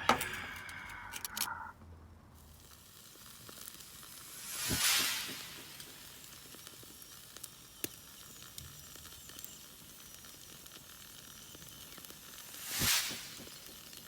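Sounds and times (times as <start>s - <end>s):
food sizzling over fire: 2.4s - 14.0s
wood fire crackles and pops: 2.4s - 14.0s.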